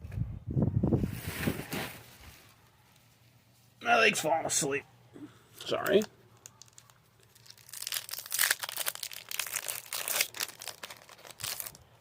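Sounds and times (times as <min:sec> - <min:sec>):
foil wrapper crinkling and tearing: 0:05.8 - 0:12.0.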